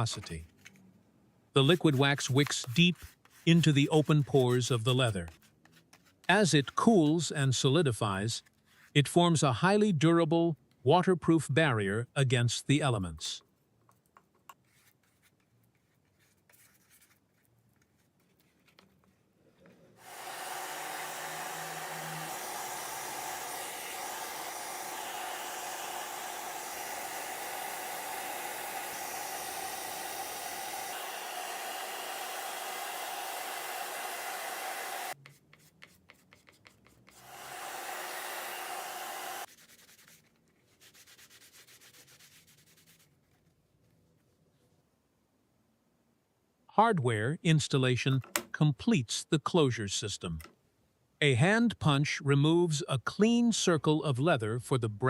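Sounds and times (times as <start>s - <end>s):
hair dryer running: 20.0s - 35.2s, 37.2s - 39.5s.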